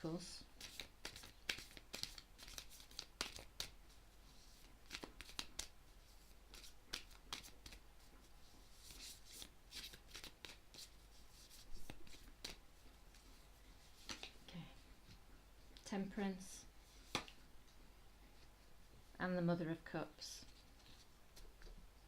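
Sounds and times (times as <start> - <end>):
cards being shuffled: 0.6 - 3.8, 4.5 - 5.7, 6.5 - 7.8, 8.8 - 13.3, 14.0 - 14.4
light snaps and taps of cards: 0.6 - 3.8, 4.9 - 5.7, 14.0 - 14.4.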